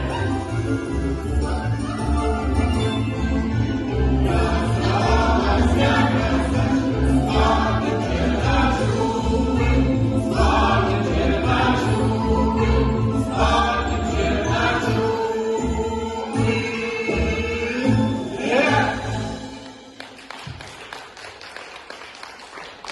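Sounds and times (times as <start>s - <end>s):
choir singing in chorus: 3.8s - 19.5s.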